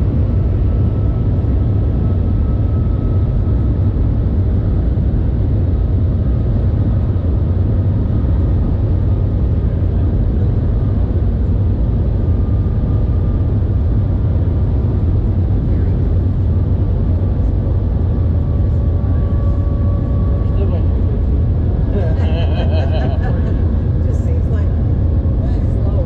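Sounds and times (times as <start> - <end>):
train cabin low rumble: 0.0 - 26.0
faint high whine: 10.4 - 22.2.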